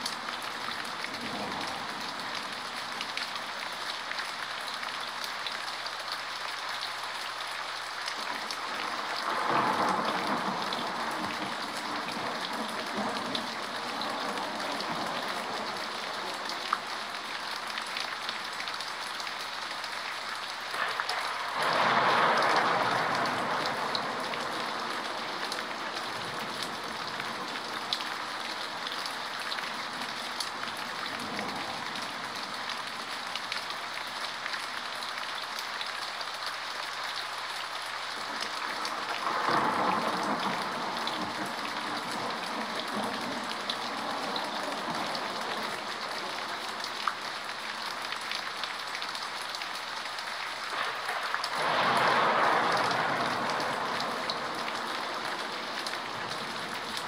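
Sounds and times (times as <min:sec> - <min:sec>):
steady rain: 0:00.0 - 0:57.0
distant thunder rumble: 0:08.9 - 0:16.4, 0:20.8 - 0:27.9, 0:50.7 - 0:56.9.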